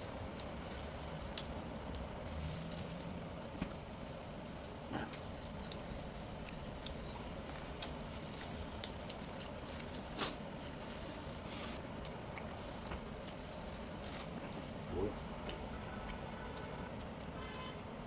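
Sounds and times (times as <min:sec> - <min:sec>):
soft wet chewing: 0:00.3 - 0:13.4.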